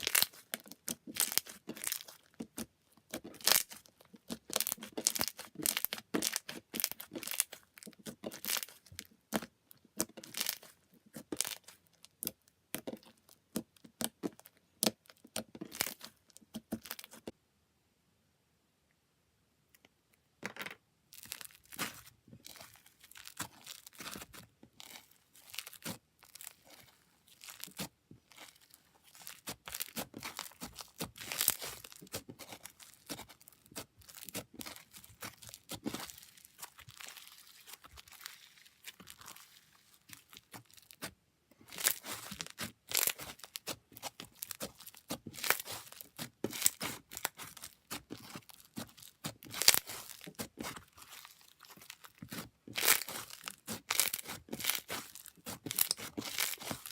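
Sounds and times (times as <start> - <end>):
slime crackling and popping: 0.0 - 17.3, 21.2 - 56.9.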